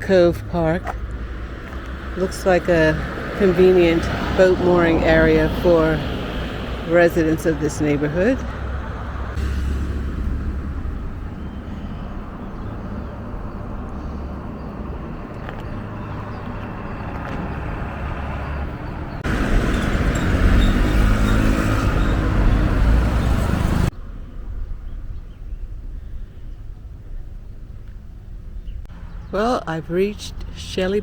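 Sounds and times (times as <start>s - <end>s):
road traffic rumble: 0.0s - 31.0s
motor vehicle passing close: 0.3s - 24.0s.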